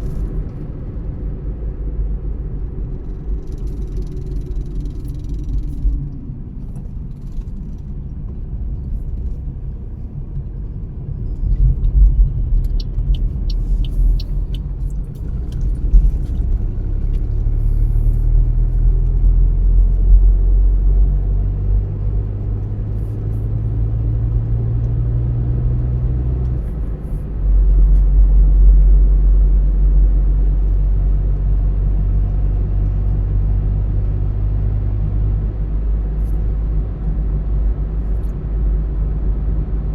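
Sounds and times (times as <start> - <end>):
car engine and tyre rumble: 0.0 - 39.9
light ticks: 11.4 - 17.6.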